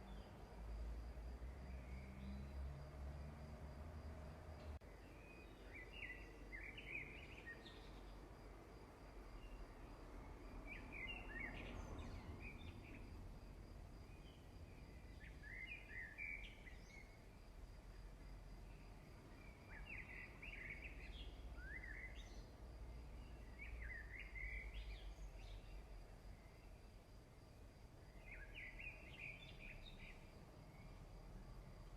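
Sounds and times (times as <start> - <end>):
small bird chirping: 14.1 - 17.2, 18.7 - 22.5.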